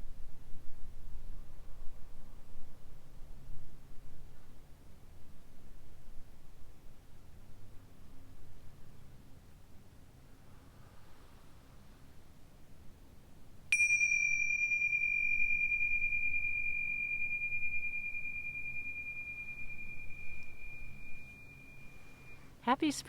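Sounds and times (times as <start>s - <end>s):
meditation chime ringing: 13.8s - 22.5s.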